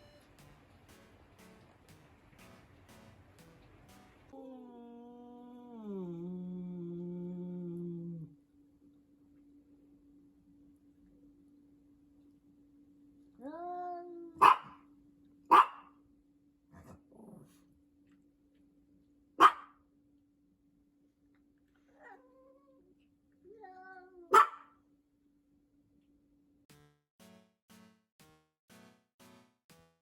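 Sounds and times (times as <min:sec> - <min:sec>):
faint steady hum: 0:00.0 - 0:26.6
dog barking: 0:14.4 - 0:14.8, 0:15.5 - 0:15.9, 0:19.4 - 0:19.8, 0:24.3 - 0:24.7.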